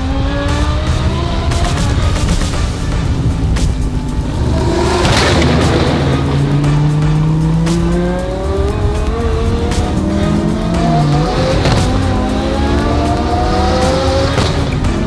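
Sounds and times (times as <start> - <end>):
sharp exhaust pops: 0.0 - 15.0
sports car engine accelerating: 0.0 - 15.0.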